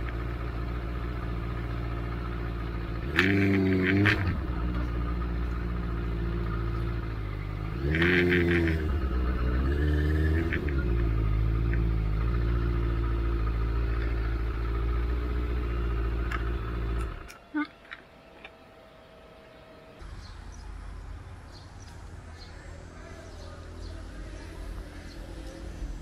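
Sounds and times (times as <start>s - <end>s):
motorcycle engine revving: 0.0s - 17.4s, 20.0s - 26.0s.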